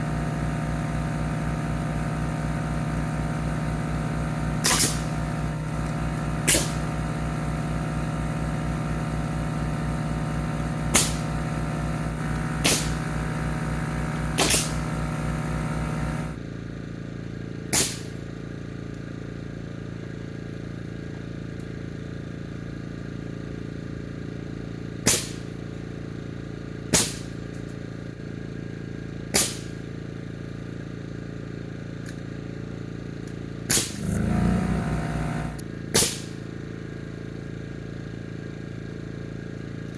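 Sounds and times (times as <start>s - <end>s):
air compressor running: 0.0s - 16.5s, 28.8s - 39.9s
nail gun firing: 4.6s - 5.4s, 6.4s - 7.0s, 10.8s - 11.4s, 12.6s - 13.2s, 14.1s - 15.0s, 17.8s - 18.2s, 25.0s - 25.5s, 26.9s - 27.4s, 29.3s - 29.8s, 33.7s - 34.4s, 35.5s - 36.4s.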